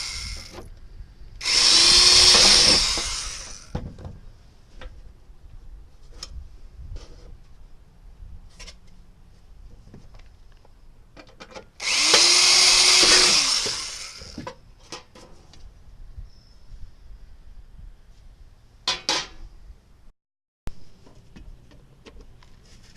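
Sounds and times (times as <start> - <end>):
power tool on sheet metal: 0.0 - 0.6, 1.4 - 3.8, 11.8 - 14.4.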